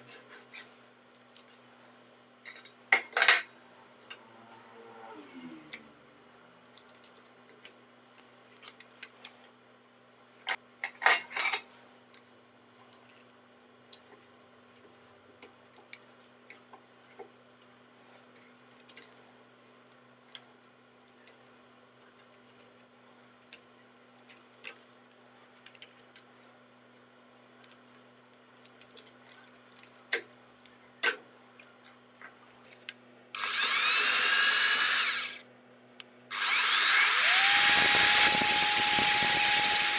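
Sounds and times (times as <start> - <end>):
small power tool motor: 33.4 - 35.4, 36.3 - 39.9.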